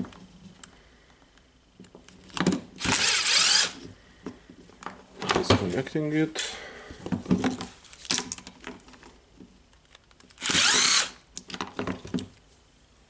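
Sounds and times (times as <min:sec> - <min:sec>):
clicks and knocks of plastic parts: 0:11.3 - 0:12.4.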